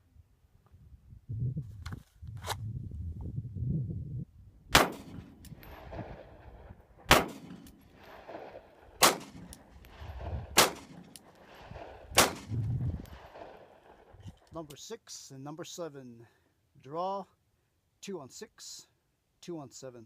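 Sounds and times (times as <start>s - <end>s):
pistol shots: 4.7s - 14.1s.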